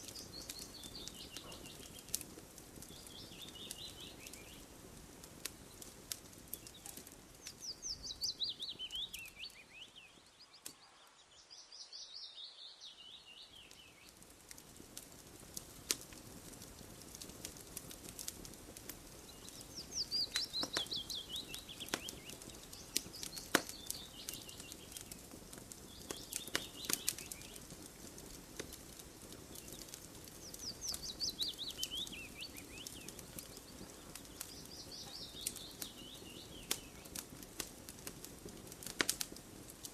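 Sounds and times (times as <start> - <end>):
bird singing: 0.0 - 2.2, 2.9 - 4.6, 6.5 - 14.2, 19.3 - 25.2, 25.9 - 27.6, 29.5 - 37.1
campfire crackling: 0.0 - 39.9.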